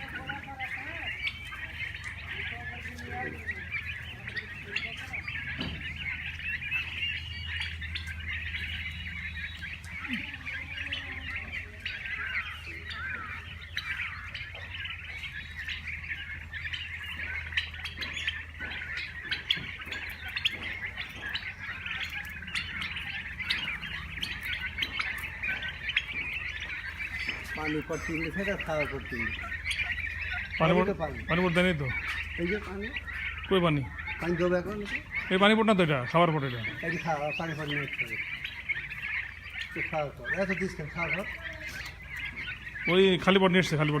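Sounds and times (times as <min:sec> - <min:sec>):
flock of birds chirping: 0:00.0 - 0:44.0.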